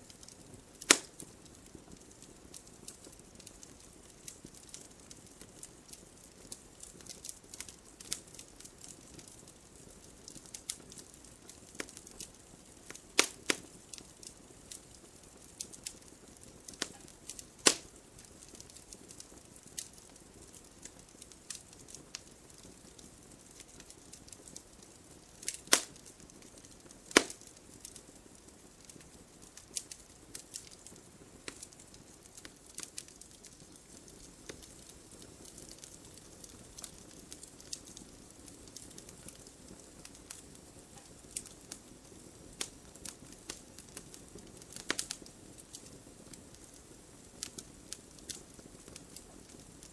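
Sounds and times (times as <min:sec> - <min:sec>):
logs crackling in fireplace: 0:00.0 - 0:49.9
low hiss of flames: 0:00.0 - 0:49.9
loud sharp pops: 0:00.8 - 0:01.1, 0:13.2 - 0:13.6, 0:17.6 - 0:17.9, 0:25.7 - 0:26.0, 0:27.1 - 0:27.5.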